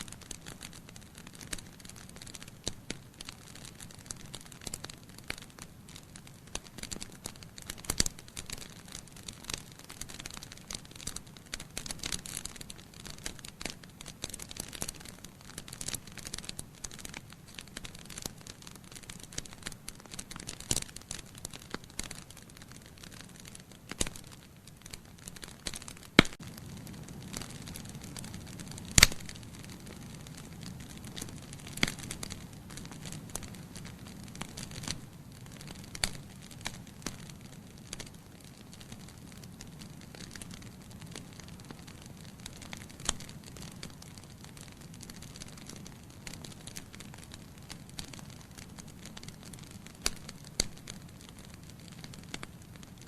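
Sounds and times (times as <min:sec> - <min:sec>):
wood fire crackling and popping: 0:00.0 - 0:53.0
low rush of flame: 0:23.9 - 0:52.8.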